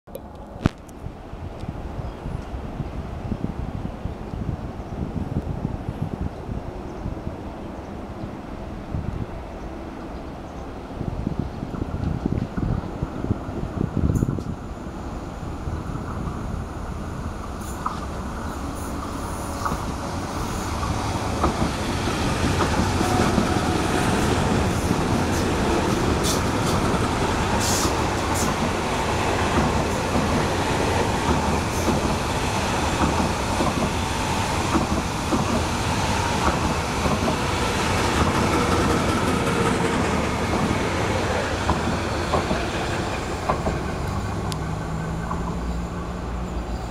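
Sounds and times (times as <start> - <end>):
train wheels rumbling on rails: 1.6 - 46.9
wheels clicking on track: 18.8 - 46.0.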